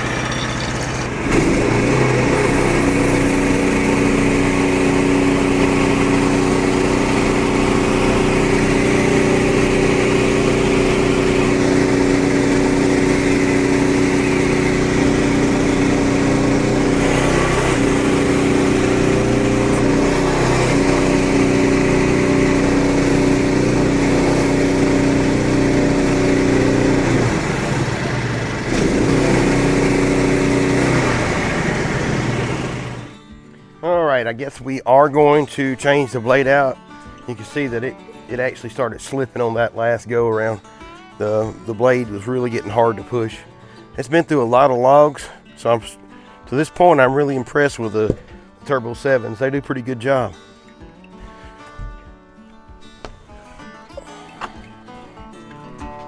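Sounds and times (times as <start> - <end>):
band saw blade cutting log: 0.0 - 33.2
gas engine running: 0.0 - 33.4.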